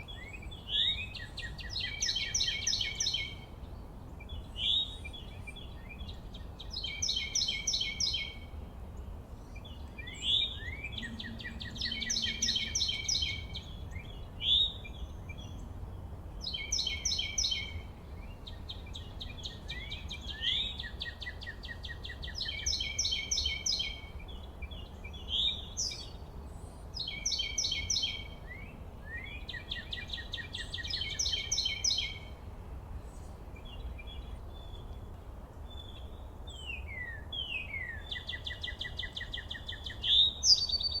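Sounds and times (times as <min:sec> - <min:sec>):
songbirds trilling: 0:00.0 - 0:41.0
bird chirps: 0:09.6 - 0:15.7, 0:27.0 - 0:32.4, 0:35.7 - 0:41.0.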